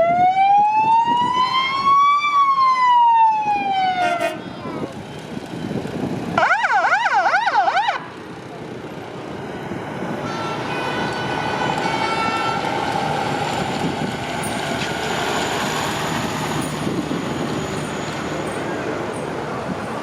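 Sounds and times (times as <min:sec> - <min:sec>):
fire truck siren yelping: 0:00.0 - 0:04.5, 0:06.4 - 0:08.2
road noise: 0:00.0 - 0:20.0
truck engines: 0:00.0 - 0:20.0.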